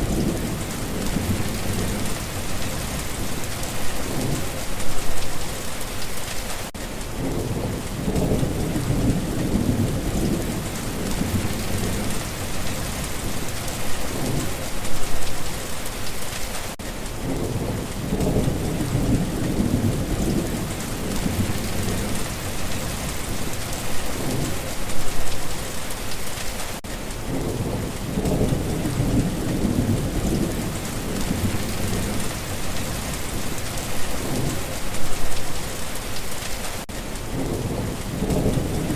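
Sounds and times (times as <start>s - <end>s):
low thunder rolls: 0.0s - 5.1s, 7.1s - 15.2s, 17.2s - 25.1s, 27.2s - 35.3s, 37.3s - 38.9s
steady rain: 0.0s - 38.9s.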